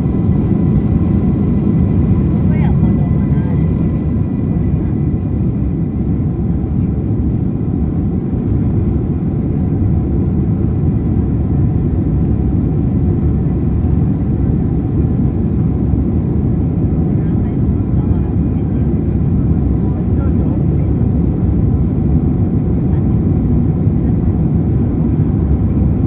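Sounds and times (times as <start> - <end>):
jet engines low rumble: 0.0 - 26.0.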